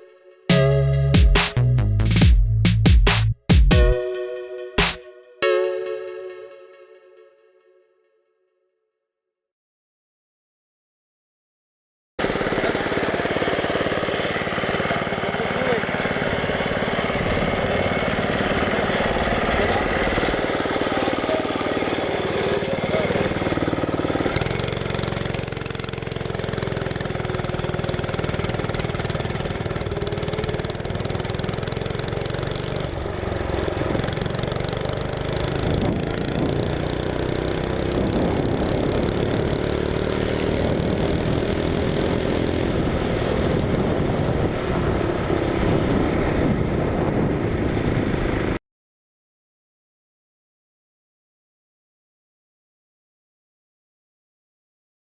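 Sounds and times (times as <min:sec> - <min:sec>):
go-kart engine revving: 0:12.2 - 0:46.8.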